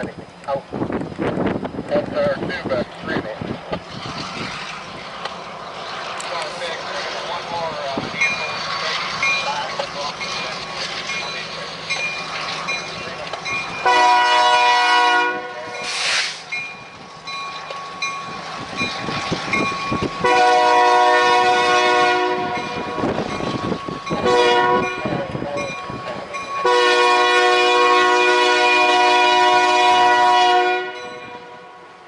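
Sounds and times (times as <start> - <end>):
locomotive air horn blasts: 13.8 - 15.9, 20.2 - 22.9, 24.2 - 25.1, 26.6 - 31.9
wind on microphone: 22.3 - 26.2.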